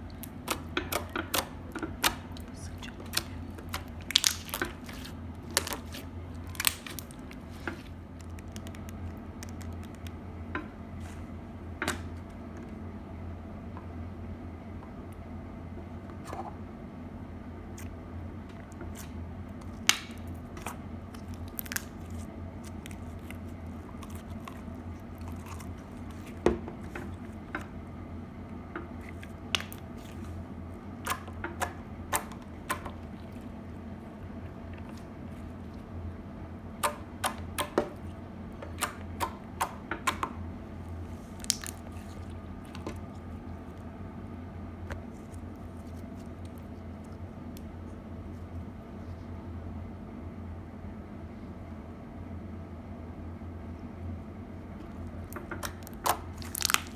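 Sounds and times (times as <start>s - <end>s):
steady low hum: 0.0s - 56.9s
slime squeezed popping: 0.1s - 10.1s, 41.3s - 42.3s, 55.3s - 56.9s.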